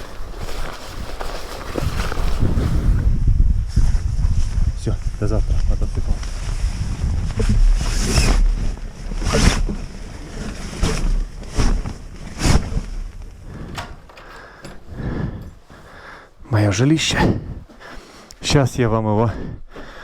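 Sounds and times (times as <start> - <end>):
wind buffeting microphone: 1.8 - 15.7.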